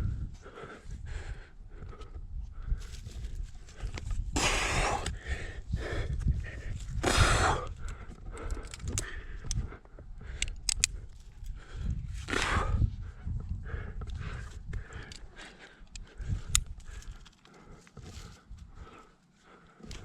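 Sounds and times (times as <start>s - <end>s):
low rumble on microphone: 0.0s - 19.0s
person breathing hard: 0.0s - 20.0s
sharp clicks: 10.3s - 11.1s.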